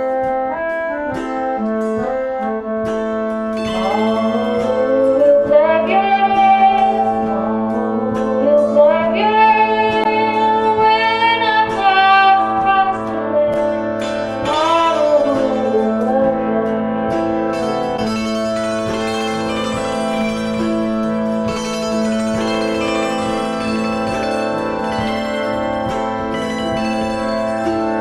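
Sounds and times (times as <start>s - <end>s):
plucked guitar: 0.0s - 28.0s
low drone note: 3.5s - 9.2s, 14.0s - 28.0s
violin melody with vibrato: 3.6s - 16.4s, 17.2s - 28.0s.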